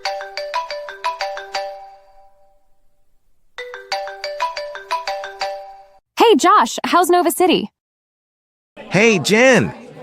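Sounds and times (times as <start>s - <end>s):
phone ringtone chiming notes: 0.0s - 2.6s, 3.6s - 6.0s.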